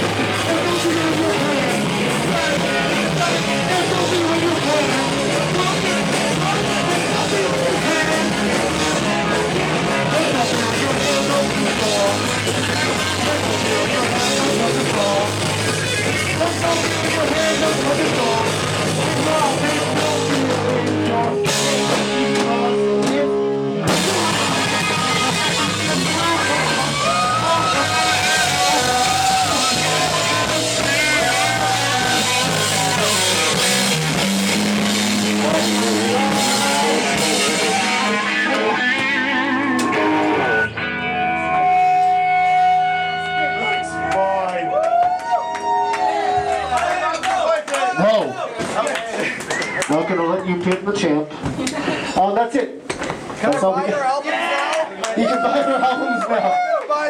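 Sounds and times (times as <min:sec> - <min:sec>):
drum kit: 0:00.0 - 0:40.7
person singing: 0:00.0 - 0:40.8
electric guitar: 0:00.0 - 0:46.8.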